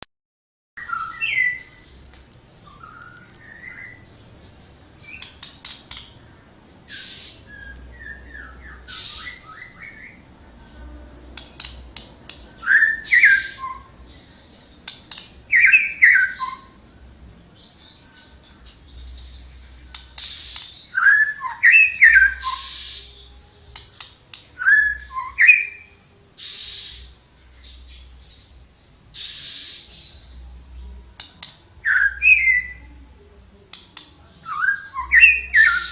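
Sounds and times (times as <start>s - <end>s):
songbird whistling phrases: 0.8s - 4.2s, 6.9s - 10.3s, 12.6s - 14.1s, 15.1s - 16.8s, 19.9s - 24.0s, 24.6s - 27.2s, 31.8s - 32.9s, 33.7s - 35.9s.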